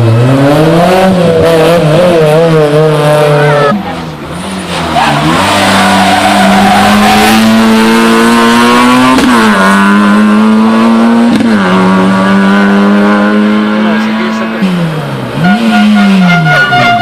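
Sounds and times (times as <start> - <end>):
rally car engine at full throttle: 0.0 - 17.0.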